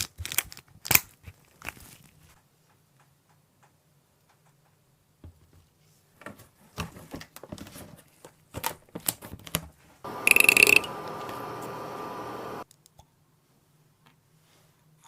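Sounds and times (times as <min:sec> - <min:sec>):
small electric machine whirring: 0:10.1 - 0:12.6.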